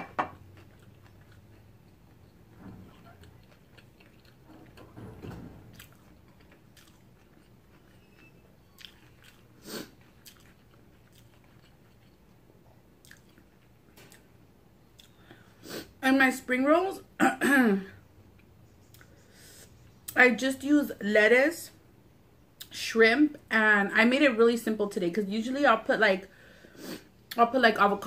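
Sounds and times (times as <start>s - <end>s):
person chewing: 0.4s - 5.0s, 5.6s - 15.4s, 18.4s - 19.4s.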